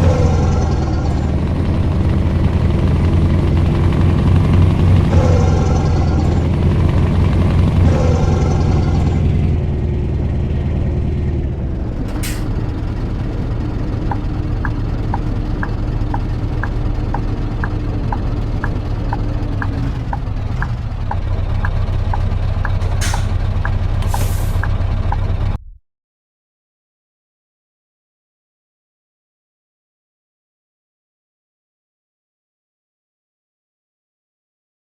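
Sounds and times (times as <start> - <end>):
truck engine running: 0.0 - 25.6
turn signal ticking: 14.0 - 24.8
short air hisses: 24.0 - 24.7.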